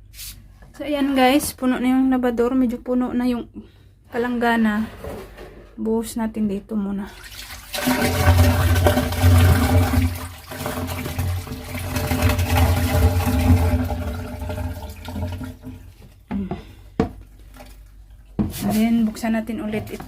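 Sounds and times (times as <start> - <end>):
water gushing and splashing: 7.2 - 15.7.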